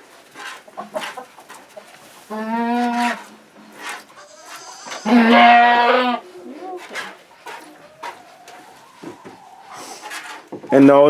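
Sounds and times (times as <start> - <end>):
chickens clucking: 0.0 - 11.0
goat bleating: 2.3 - 3.3, 4.0 - 8.7.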